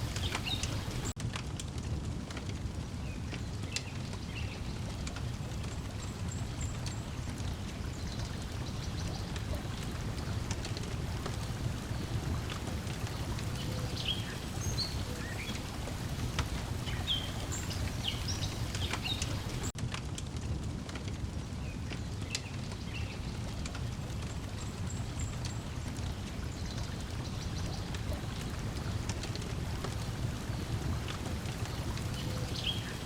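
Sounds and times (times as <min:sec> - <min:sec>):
small birds chirping: 0:00.0 - 0:01.2, 0:03.0 - 0:19.8, 0:21.6 - 0:33.0
water lapping and splashing: 0:00.0 - 0:01.2, 0:03.4 - 0:19.8, 0:20.5 - 0:33.0
wood fire crackling: 0:00.0 - 0:33.0.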